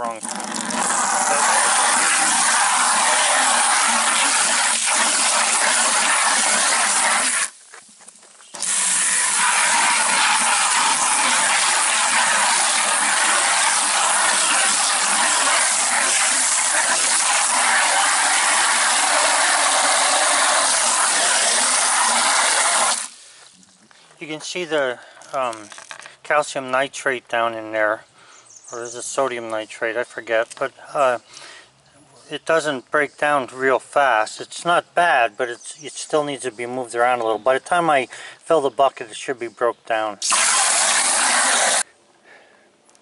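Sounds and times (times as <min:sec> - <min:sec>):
hose water running into bucket: 0:00.0 - 0:07.6, 0:08.5 - 0:23.3, 0:40.2 - 0:41.8.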